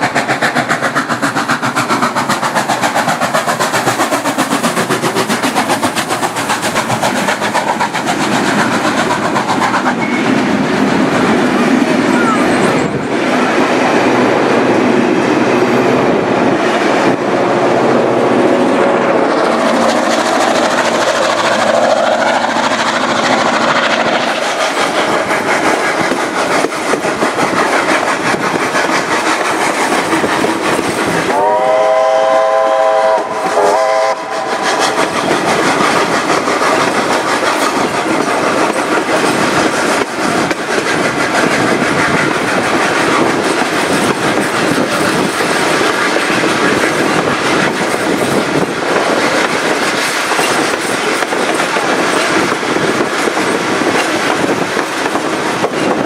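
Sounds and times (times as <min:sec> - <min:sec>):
steam locomotive running: 0:00.0 - 0:56.0
steam whistle blast: 0:31.3 - 0:34.6.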